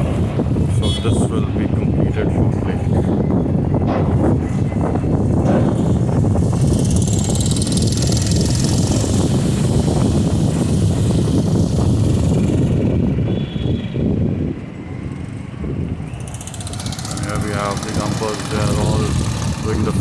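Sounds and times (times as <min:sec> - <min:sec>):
heavy vehicle rumbling past: 0:16.2 - 0:20.0.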